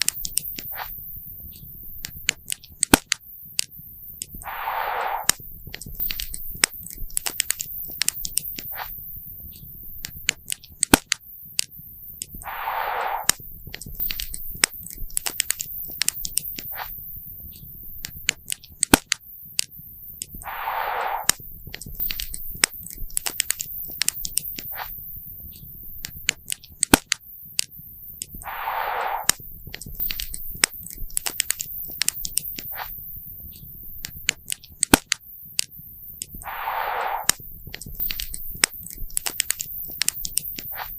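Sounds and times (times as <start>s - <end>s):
brief hiss: 4.4s - 5.4s, 12.4s - 13.4s, 20.4s - 21.4s, 28.4s - 29.4s, 36.4s - 37.5s.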